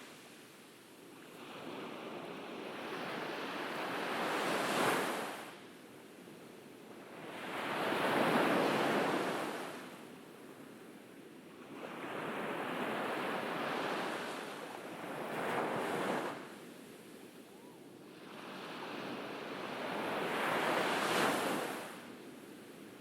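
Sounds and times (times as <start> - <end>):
ocean waves breaking on beach: 0.0 - 5.6, 6.9 - 10.1, 11.6 - 23.0.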